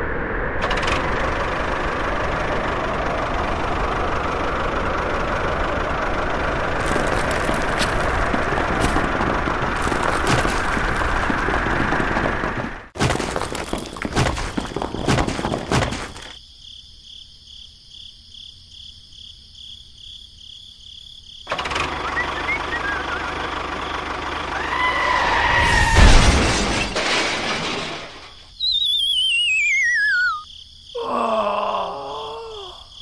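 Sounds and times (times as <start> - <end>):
falling rocks clatter: 6.8 - 16.4
descending slide whistle: 22.0 - 23.4, 24.5 - 26.2, 28.6 - 30.5
cartoon crash: 24.6 - 30.4.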